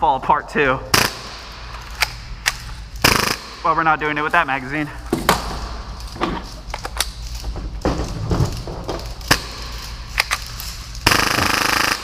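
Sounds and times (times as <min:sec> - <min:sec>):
full-auto airsoft fire: 0:00.9 - 0:01.6, 0:03.0 - 0:03.6, 0:11.0 - 0:12.0
magazine being swapped: 0:01.7 - 0:03.0, 0:05.1 - 0:11.0.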